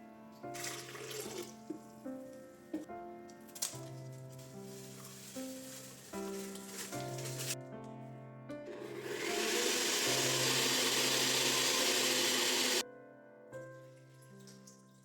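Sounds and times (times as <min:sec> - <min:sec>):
soft background music: 0:00.0 - 0:11.4, 0:12.8 - 0:15.0
electric motor appliance whirring: 0:08.7 - 0:12.8.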